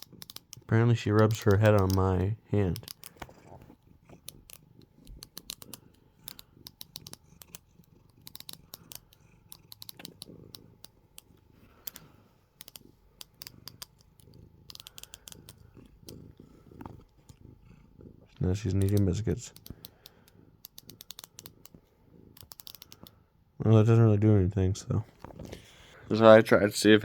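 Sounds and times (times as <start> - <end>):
sharp clicks: 0.0 - 3.4, 4.2 - 16.2, 18.7 - 21.8, 22.4 - 23.2
cat purring softly: 0.0 - 27.0.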